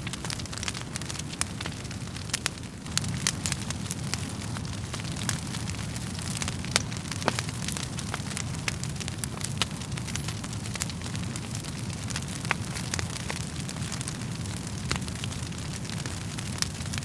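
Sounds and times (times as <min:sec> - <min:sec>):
logs crackling and popping: 0:00.0 - 0:17.0
low rumble of flames: 0:00.0 - 0:17.0.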